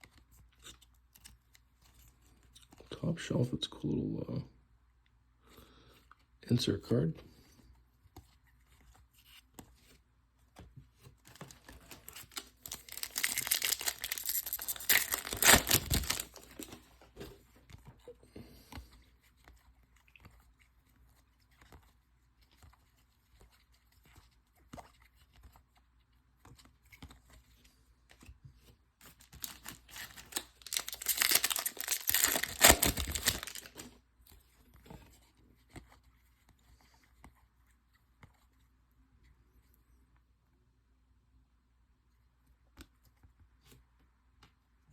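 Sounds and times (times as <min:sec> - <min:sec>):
cards clicking and rustling: 0:10.5 - 0:18.0, 0:29.0 - 0:34.0
card pack wrapper tearing: 0:11.4 - 0:16.8, 0:29.2 - 0:33.9.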